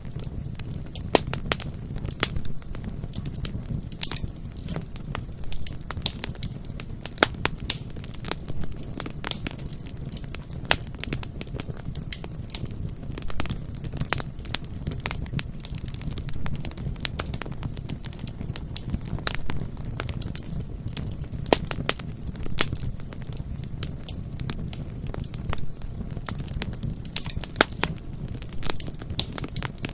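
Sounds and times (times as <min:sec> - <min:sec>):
burning wood crackling and popping: 0:00.0 - 0:29.9
low rumble of flames: 0:00.0 - 0:29.9.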